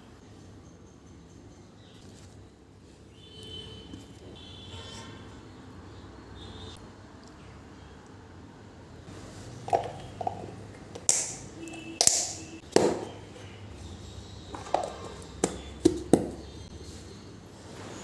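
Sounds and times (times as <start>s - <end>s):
objects knocking and clacking: 9.6s - 11.4s, 14.5s - 16.5s.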